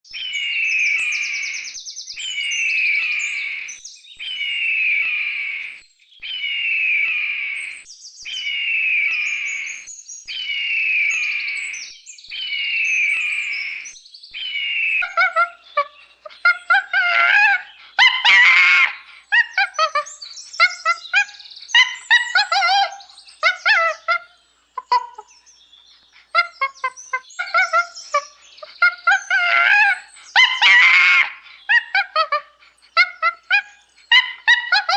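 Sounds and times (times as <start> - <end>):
high-pitched animal chirping calls: 14.4 - 25.4, 26.2 - 34.9.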